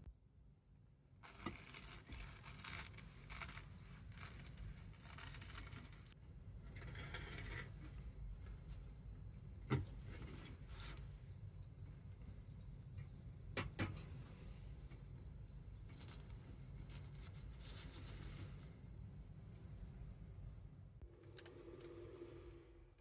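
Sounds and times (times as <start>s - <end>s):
rustling and scraping of objects: 1.2s - 8.9s, 9.7s - 11.1s, 15.9s - 20.5s.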